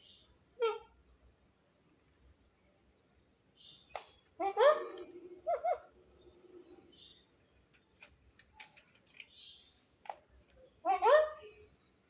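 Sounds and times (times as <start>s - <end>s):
parrot calling: 4.4s - 6.9s
faint clicks: 7.6s - 9.4s.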